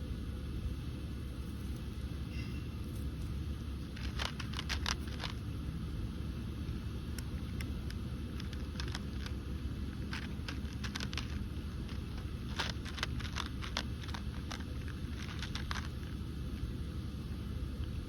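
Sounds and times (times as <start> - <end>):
cat chewing food: 3.8 - 5.5, 7.0 - 16.8.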